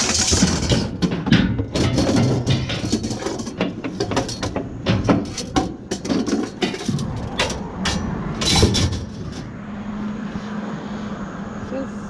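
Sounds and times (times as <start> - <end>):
metal scraping clatter: 0.0 - 9.6
scrap metal clanking: 0.0 - 9.6
vehicle engine humming: 0.0 - 12.0.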